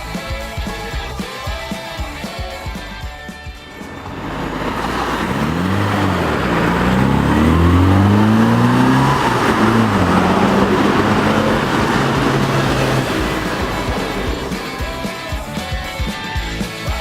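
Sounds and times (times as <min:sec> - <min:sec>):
car engine revving: 0:03.6 - 0:16.7.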